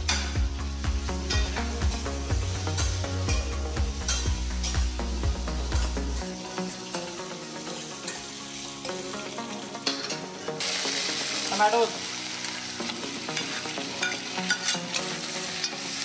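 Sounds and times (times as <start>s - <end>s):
onions sizzling in oil: 0.0s - 16.0s
metal ladle scraping pan: 2.7s - 4.8s, 13.3s - 15.9s.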